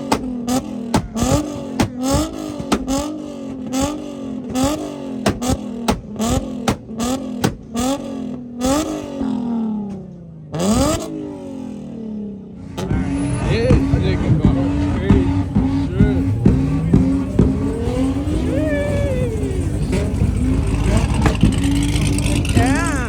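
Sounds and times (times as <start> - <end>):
exhaust pops and cracks: 0.0 - 8.0, 19.8 - 22.6
car engine revving: 0.0 - 23.0.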